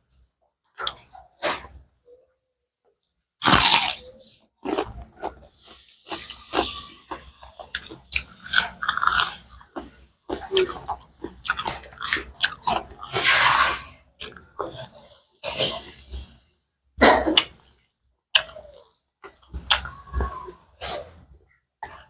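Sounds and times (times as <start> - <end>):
biting into meat: 3.4 - 4.0
chewing with wet mouth clicks: 18.3 - 18.6.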